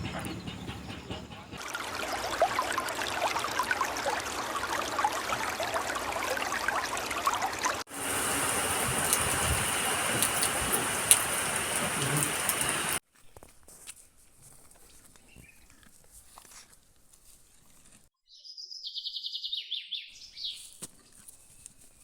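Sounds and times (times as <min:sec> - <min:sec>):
rushing water with high hiss: 0:01.6 - 0:13.0
stream water babbling: 0:01.6 - 0:13.0.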